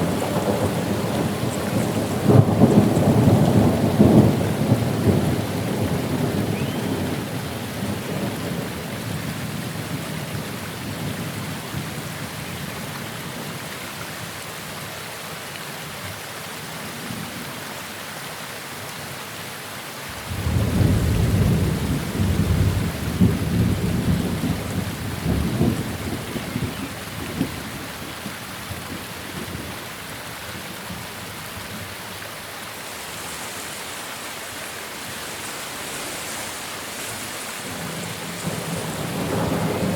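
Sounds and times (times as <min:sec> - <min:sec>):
thunder rumbling: 0:00.0 - 0:08.7, 0:20.2 - 0:29.7, 0:37.6 - 0:39.9
rain hissing: 0:00.0 - 0:11.3, 0:20.1 - 0:39.9.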